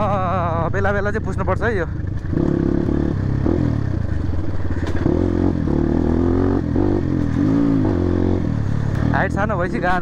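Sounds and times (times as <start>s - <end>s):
dirt bike engine revving: 1.9s - 10.0s.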